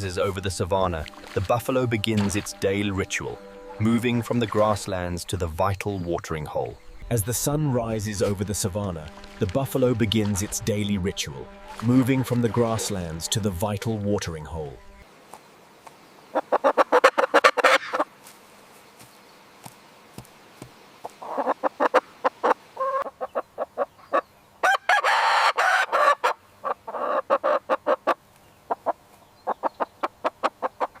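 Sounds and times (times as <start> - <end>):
chickens clucking: 16.3 - 18.1, 21.1 - 31.0.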